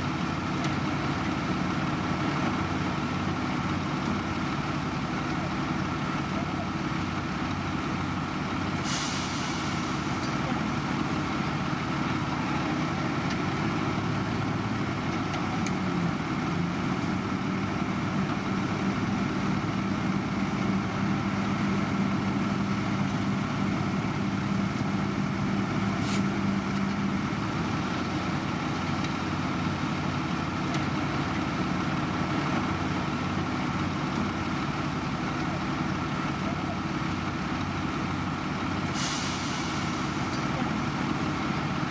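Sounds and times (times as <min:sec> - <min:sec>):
heavy diesel machinery running: 0:00.0 - 0:41.9
air hiss: 0:08.8 - 0:10.1, 0:38.9 - 0:40.2.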